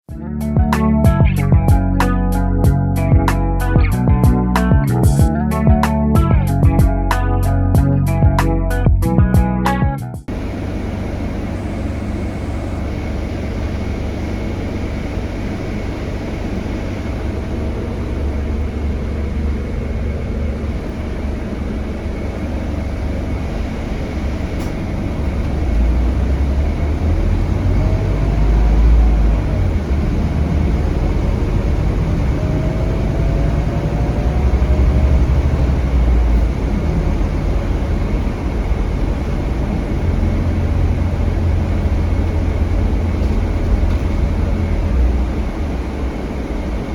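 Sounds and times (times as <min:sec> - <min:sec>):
bus diesel engine rumbling: 0:00.0 - 0:46.9
faint whines: 0:10.3 - 0:46.9.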